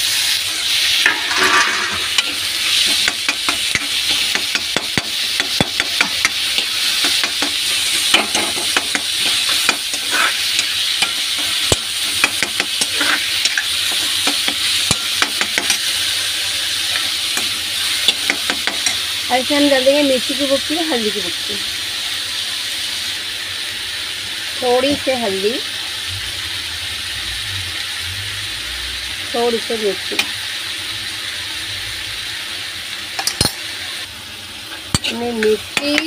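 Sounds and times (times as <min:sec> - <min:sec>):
vegetables sizzling in hot oil: 0:00.0 - 0:36.0
ladle scraping metal pan: 0:01.0 - 0:02.4.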